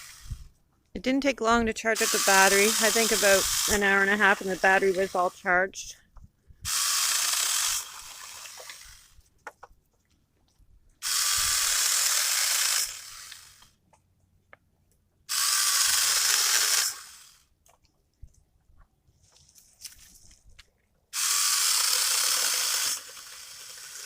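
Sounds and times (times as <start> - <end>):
mini chainsaw running in bursts: 1.9 - 5.5, 6.7 - 9.1, 11.0 - 13.7, 15.3 - 17.4, 21.2 - 24.0.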